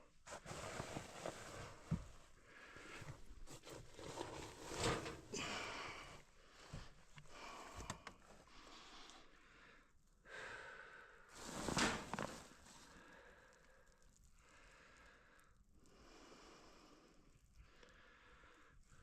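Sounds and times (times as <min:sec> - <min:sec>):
person breathing hard: 0:05.3 - 0:11.5, 0:12.8 - 0:19.0.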